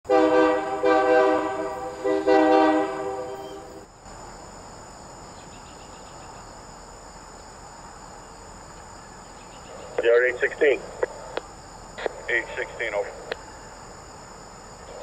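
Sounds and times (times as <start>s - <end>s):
train horn blasts: 0.0s - 3.9s.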